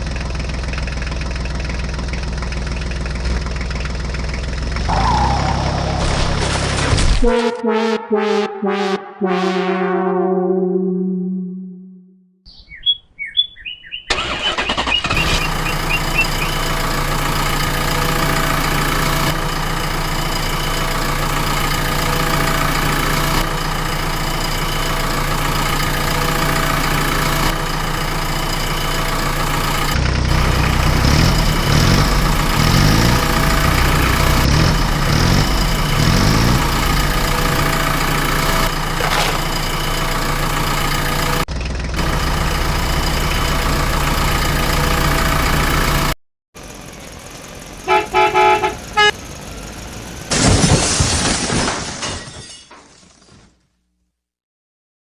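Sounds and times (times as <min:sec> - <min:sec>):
vehicle engine starting and revving: 0:02.9 - 0:07.1, 0:14.1 - 0:50.4.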